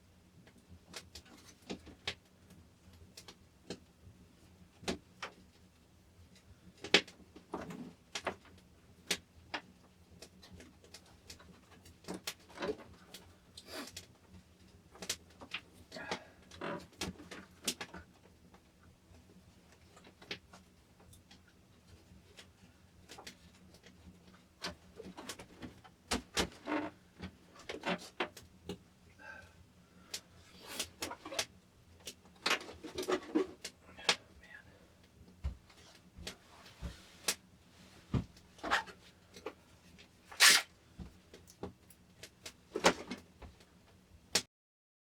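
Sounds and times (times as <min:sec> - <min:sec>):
objects being handled: 0:40.3 - 0:40.7.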